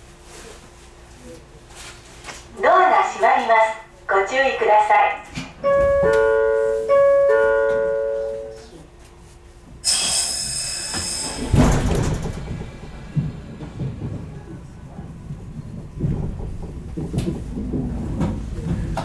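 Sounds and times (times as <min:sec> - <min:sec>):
compressed air hiss of train doors: 0:09.8 - 0:14.5
heavy door thud: 0:11.0 - 0:19.0
low rumble: 0:11.5 - 0:19.0.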